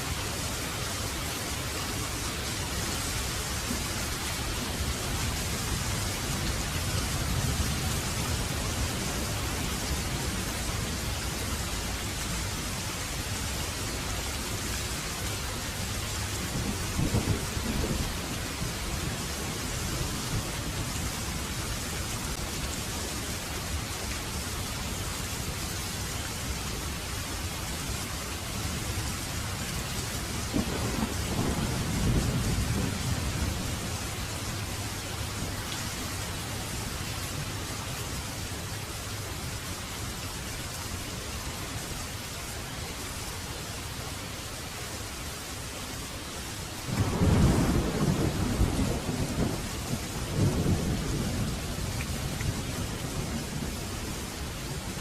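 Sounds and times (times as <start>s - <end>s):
heavy rain: 0.0s - 55.0s
thunder rumbling: 16.4s - 20.8s, 30.4s - 35.5s, 46.9s - 54.9s.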